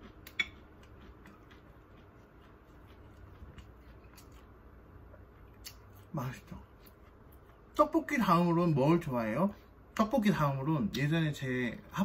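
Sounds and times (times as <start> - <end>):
chewing and eating: 0.0 - 8.4
soft mouth clicks: 0.2 - 1.5.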